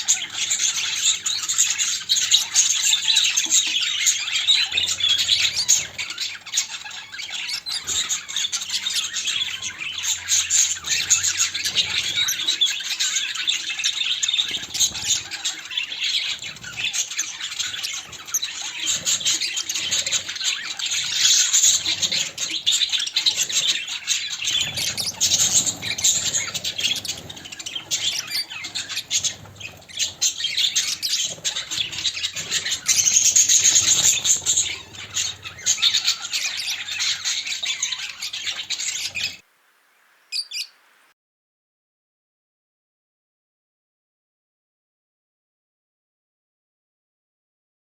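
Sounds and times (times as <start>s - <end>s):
budgerigars chattering: 0.0s - 39.4s, 40.3s - 40.8s
wing flutters: 16.3s - 41.1s.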